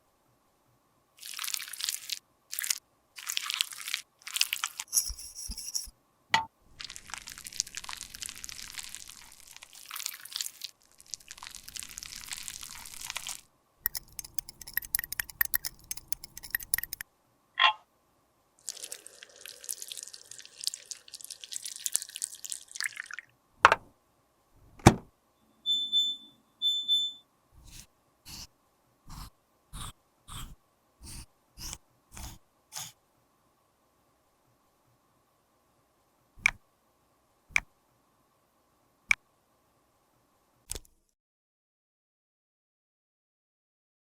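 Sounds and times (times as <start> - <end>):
evenly spaced clicks: 13.9 - 17.0
short electronic beeps: 25.6 - 27.2.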